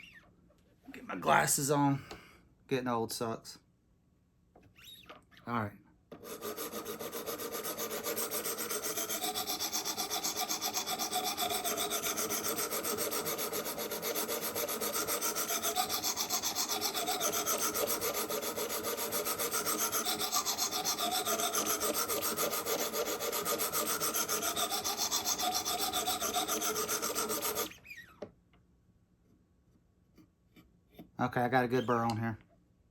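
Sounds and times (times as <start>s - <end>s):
sharpening stone rasping on knife: 6.2s - 27.7s.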